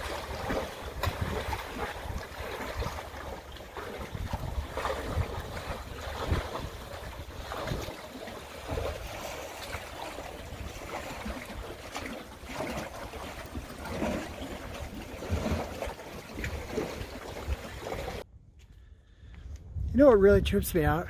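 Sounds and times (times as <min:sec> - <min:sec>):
wind buffeting microphone: 0:00.0 - 0:12.7, 0:19.3 - 0:21.0.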